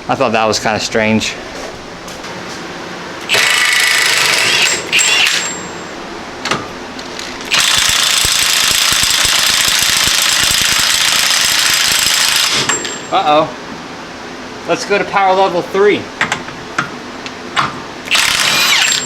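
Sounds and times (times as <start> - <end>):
impact wrench hammering: 3.3 - 5.7, 17.6 - 19.0.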